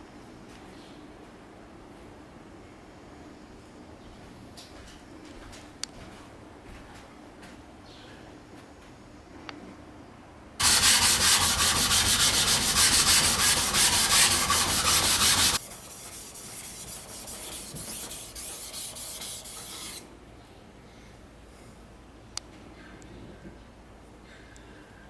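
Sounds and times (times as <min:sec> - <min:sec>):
knife scraping on whetstone: 0:10.6 - 0:20.0.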